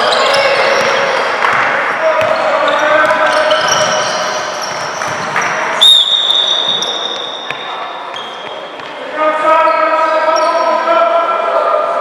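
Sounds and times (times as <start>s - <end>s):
sneakers squeaking on court: 0.0s - 9.0s, 9.7s - 10.9s
basketball bouncing: 0.1s - 5.7s.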